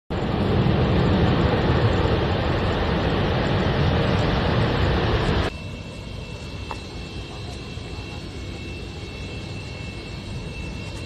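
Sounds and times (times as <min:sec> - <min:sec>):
cargo plane engines roaring: 0:00.1 - 0:11.0.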